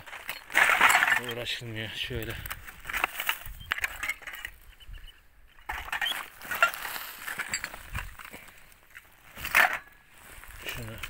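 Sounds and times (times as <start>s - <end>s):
metal clatter: 0.0s - 1.7s, 2.8s - 4.6s, 5.6s - 8.3s
scrap metal clinking and scraping: 0.0s - 4.8s, 5.6s - 11.0s
rustling: 5.6s - 11.0s.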